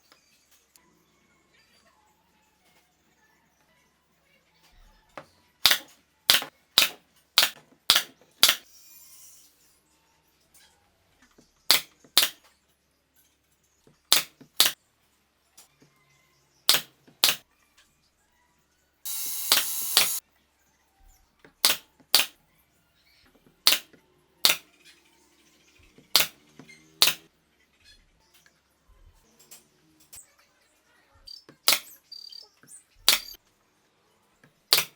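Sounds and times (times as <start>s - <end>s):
short hiss: 19.1s - 20.2s.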